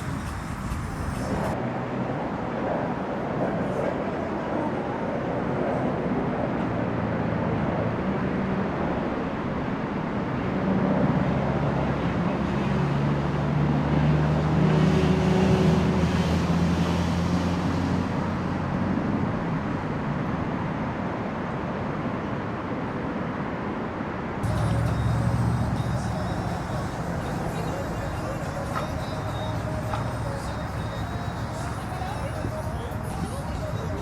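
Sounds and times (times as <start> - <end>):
engine humming: 0.0 - 1.6, 24.4 - 34.0
outdoor background noise: 0.0 - 34.0.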